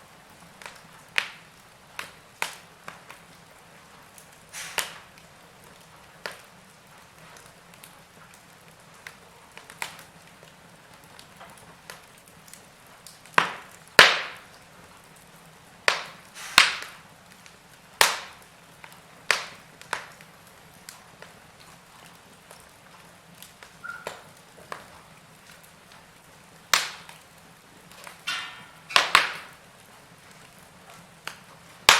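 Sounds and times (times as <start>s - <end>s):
wood fire crackling: 0.0s - 31.9s.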